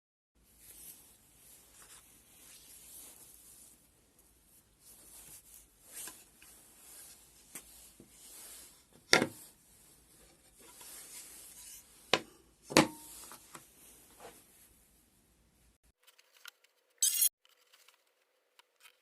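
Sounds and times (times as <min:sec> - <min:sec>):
small objects rubbing and scraping: 0:17.0 - 0:18.1.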